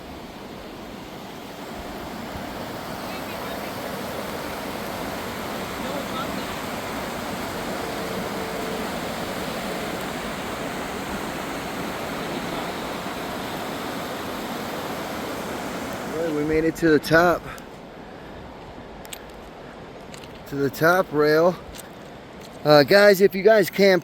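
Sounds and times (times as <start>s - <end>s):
river rapids rushing: 0.0s - 18.9s.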